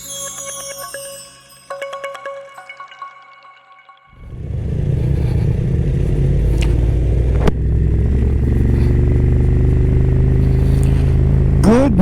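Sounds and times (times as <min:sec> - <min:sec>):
motorcycle engine idling: 0:04.3 - 0:11.9.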